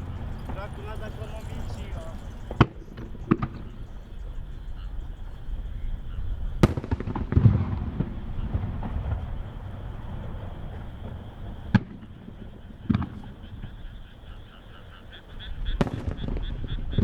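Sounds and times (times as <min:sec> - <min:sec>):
firework shells bursting: 0:00.0 - 0:04.5, 0:06.4 - 0:17.0
deep rumbling boom: 0:05.6 - 0:14.0.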